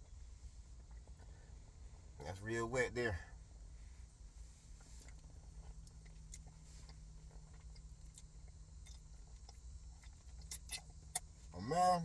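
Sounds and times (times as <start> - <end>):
steady low hum: 0.0 - 12.0
chewing and wet mouth clicks: 5.0 - 11.5.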